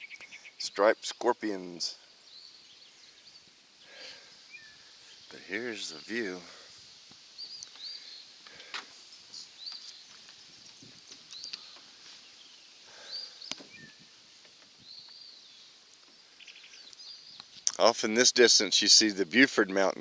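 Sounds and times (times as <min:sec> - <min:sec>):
bird chirping faintly: 0:07.3 - 0:14.2.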